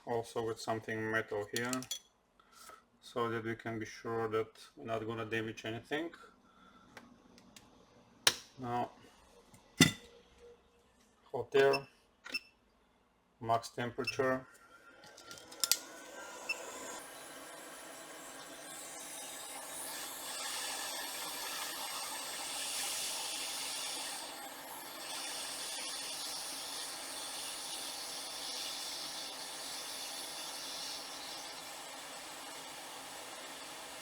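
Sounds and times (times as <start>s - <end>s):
hot air station hissing: 15.0s - 34.0s.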